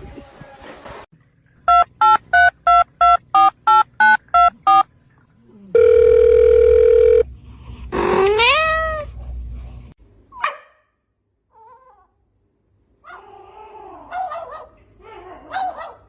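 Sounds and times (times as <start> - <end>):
telephone keypad beeps: 1.7 - 4.8, 5.8 - 7.2
long steady tone: 5.8 - 7.3
cat meowing: 8.1 - 9.0.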